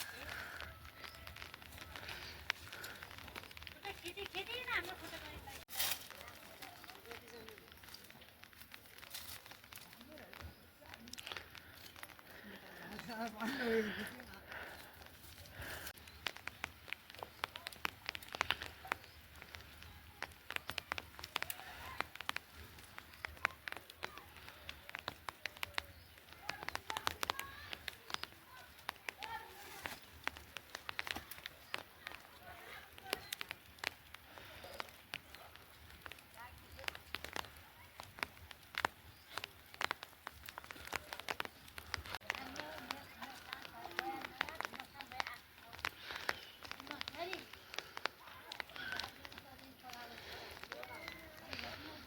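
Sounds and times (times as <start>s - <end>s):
faint rain patter: 0.0s - 52.0s
raindrops dripping on hard surface: 0.0s - 52.0s
sharp clicks and taps: 8.4s - 52.0s.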